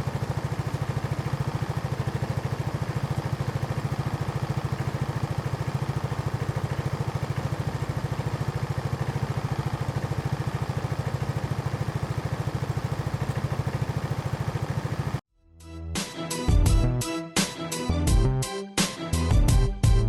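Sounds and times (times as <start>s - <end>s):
scooter engine idling: 0.0s - 15.2s.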